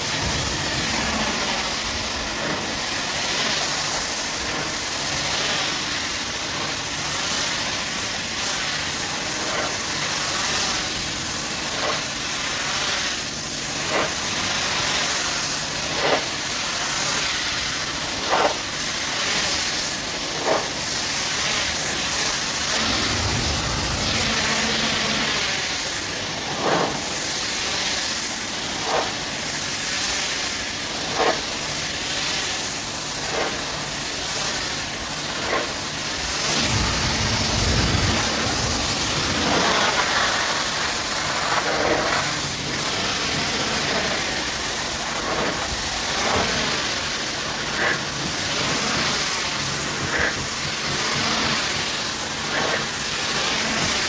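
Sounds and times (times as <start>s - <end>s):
low rumble: 0.0s - 3.1s, 21.9s - 26.5s, 36.4s - 41.5s
pressure washer spraying water: 0.0s - 54.0s.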